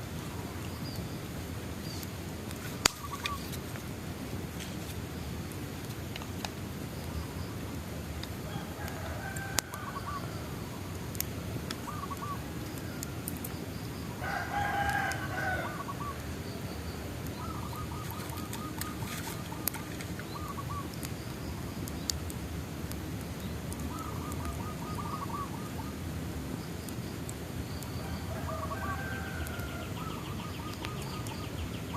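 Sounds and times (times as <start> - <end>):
bonfire crackling and popping: 0.0 - 31.9
loud bird call: 8.4 - 11.0, 11.8 - 21.8, 23.8 - 26.0, 27.7 - 31.9.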